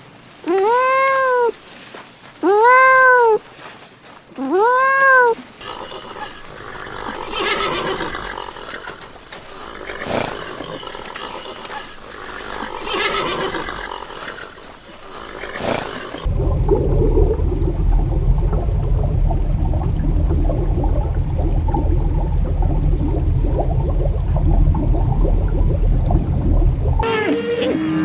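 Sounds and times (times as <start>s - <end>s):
horse whinnying and snorting: 4.5s - 16.3s
steady low rumble: 16.2s - 27.0s.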